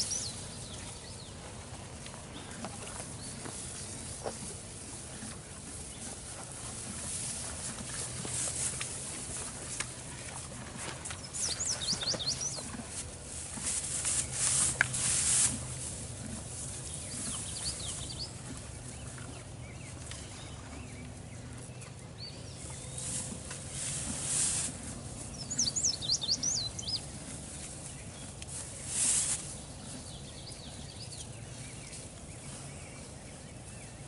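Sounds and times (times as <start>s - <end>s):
low steady hum: 0.0s - 34.0s
songbird chirping: 0.0s - 34.0s
rustling whooshes: 13.3s - 16.0s.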